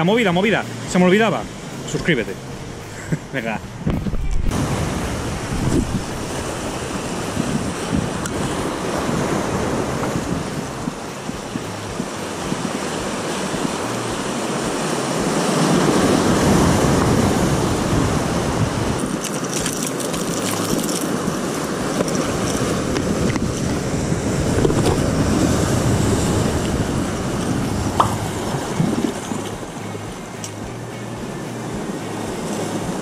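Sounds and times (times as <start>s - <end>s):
rough sea washing over rocks: 0.0s - 30.5s, 31.5s - 33.0s
wind buffeting microphone: 0.0s - 33.0s.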